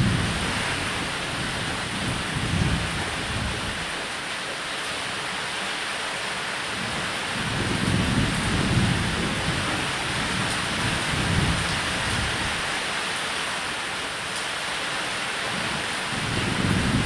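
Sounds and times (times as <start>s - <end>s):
low rolling thunder: 0.0s - 4.0s, 7.4s - 12.7s, 15.6s - 17.0s
heavy rain on a roof: 0.0s - 17.0s.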